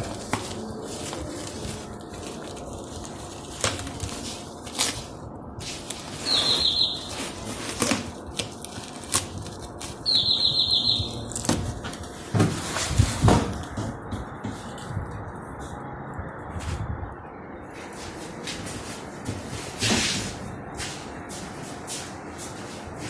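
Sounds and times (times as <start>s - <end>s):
exhaust fan running: 0.0s - 23.0s
rapid high chirping: 6.2s - 7.2s, 10.0s - 11.3s.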